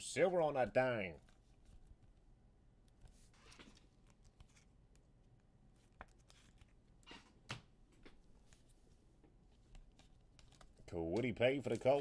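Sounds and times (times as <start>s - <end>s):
trading cards rustling and clicking: 2.9s - 8.7s, 9.5s - 12.0s.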